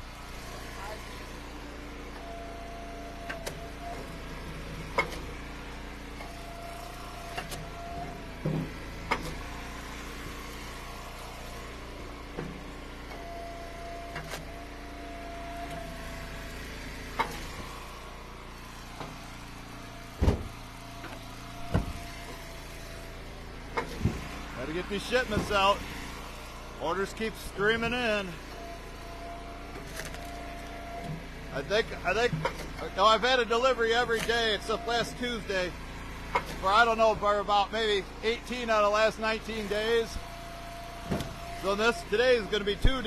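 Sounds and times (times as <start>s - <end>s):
hydraulic wood splitter whine: 0.0s - 43.0s.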